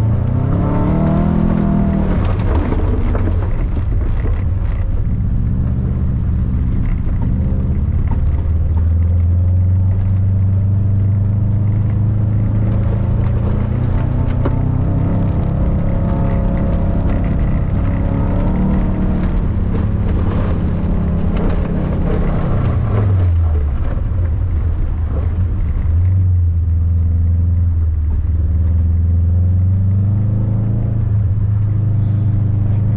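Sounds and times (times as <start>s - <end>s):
rally car engine revving high: 0.0s - 32.9s
stones and mud hitting car: 12.0s - 25.7s.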